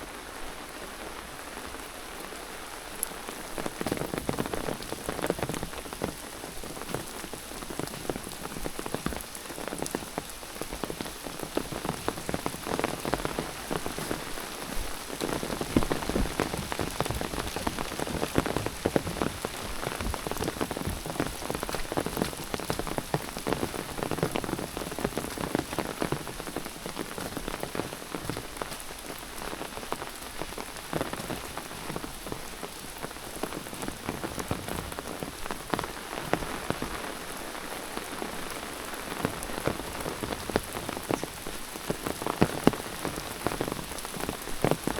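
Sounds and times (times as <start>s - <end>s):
rain falling steadily: 0.0s - 44.9s.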